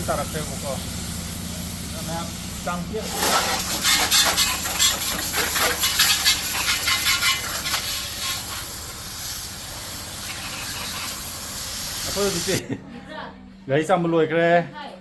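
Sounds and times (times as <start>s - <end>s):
water hissing and spattering: 0.0s - 12.6s.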